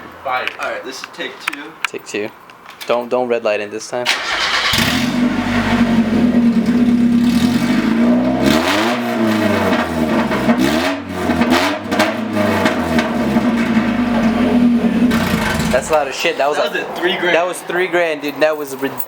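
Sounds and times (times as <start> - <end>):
loud car engine idling and revving: 4.2 - 16.1.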